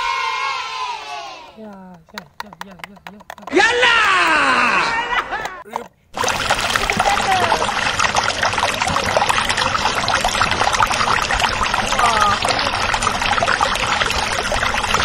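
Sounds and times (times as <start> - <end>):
water splashing in bucket: 6.2 - 15.0.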